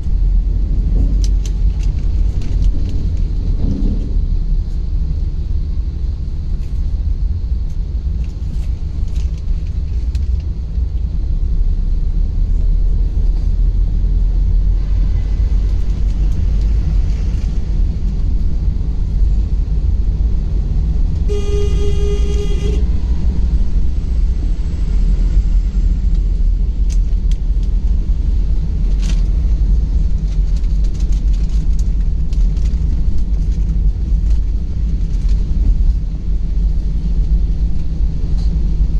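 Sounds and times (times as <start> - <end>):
car road and engine rumble: 0.0 - 38.9
vehicle horn: 21.2 - 23.0.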